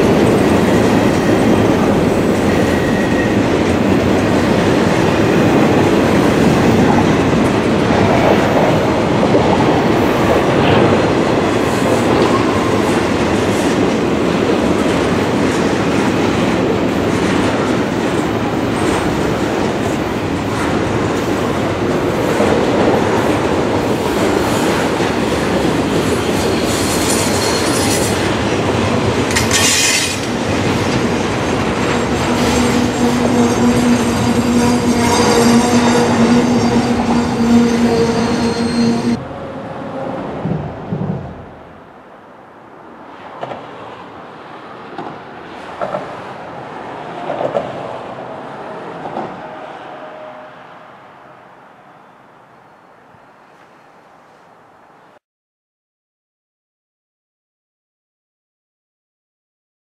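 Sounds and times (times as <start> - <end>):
steel wheels rumbling on rail: 0.0 - 41.9
high wheel squeals: 2.5 - 3.4, 26.5 - 28.2, 32.2 - 39.2
clacking over rail joints: 24.2 - 36.4, 43.4 - 43.7, 44.9 - 46.2.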